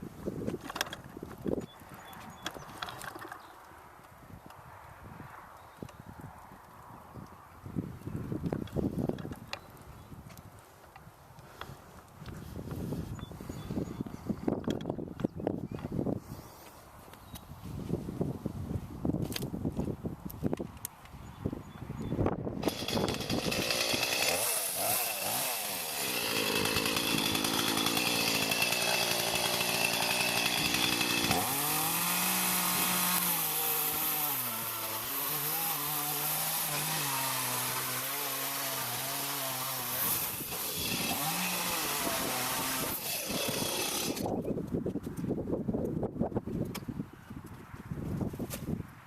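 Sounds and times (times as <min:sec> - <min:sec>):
chainsaw cutting wood: 0:22.6 - 0:44.5.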